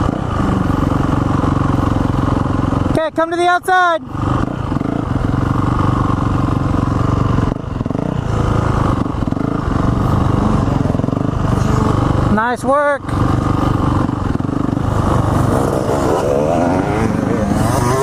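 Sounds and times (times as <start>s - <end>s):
dirt bike engine running: 0.0s - 18.0s.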